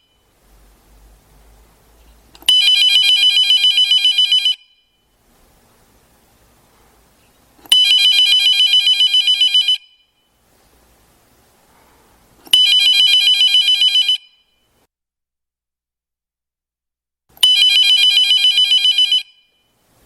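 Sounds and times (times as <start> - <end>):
telephone ringing: 2.4 - 4.8, 7.7 - 10.0, 12.5 - 14.5, 17.4 - 19.6.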